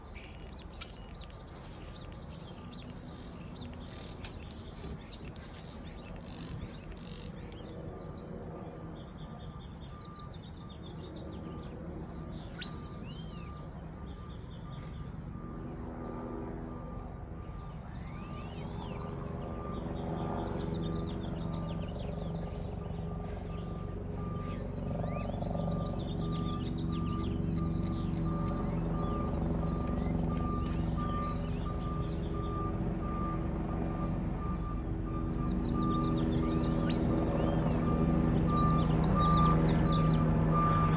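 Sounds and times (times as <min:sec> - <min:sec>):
songbirds singing: 0:00.0 - 0:15.4, 0:16.9 - 0:40.9
vehicle engine rumbling: 0:25.4 - 0:40.9
reversing beeper: 0:26.2 - 0:40.9.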